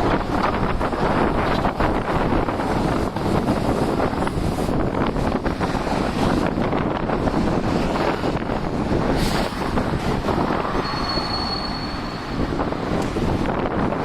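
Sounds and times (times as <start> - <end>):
wind buffeting microphone: 0.0 - 14.0
streetcar running past: 5.4 - 14.0
high wheel squeal: 10.7 - 12.7.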